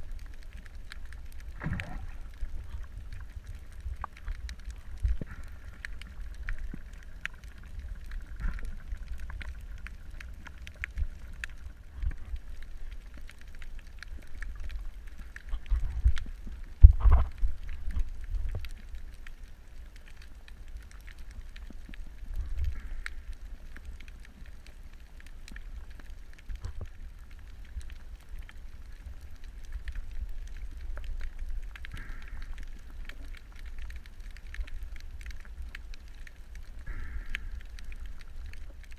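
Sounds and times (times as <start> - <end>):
crackling clicks: 0.0 - 38.9
underwater low rumble: 0.0 - 38.9.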